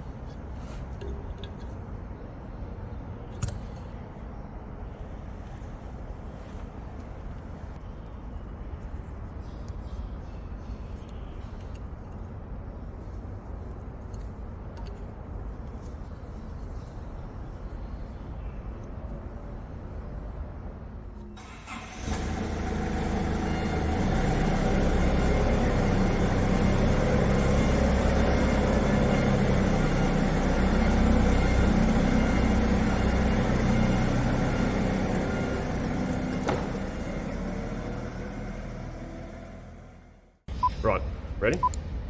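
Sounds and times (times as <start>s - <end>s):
engine starting and running: 21.4s - 40.4s.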